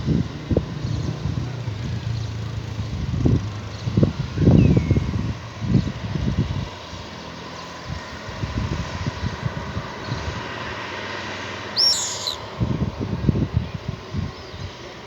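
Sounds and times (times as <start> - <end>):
bird chirp: 11.8 - 12.5.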